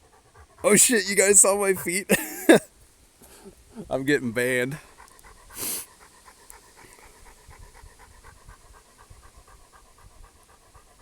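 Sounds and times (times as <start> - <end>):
dog panting: 0.0 - 2.7, 4.6 - 11.0.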